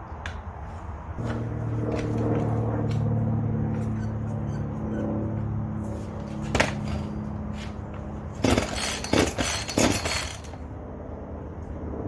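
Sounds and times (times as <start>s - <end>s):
steady low hum: 0.0s - 12.0s
clattering rattles: 6.4s - 7.3s, 8.4s - 10.6s.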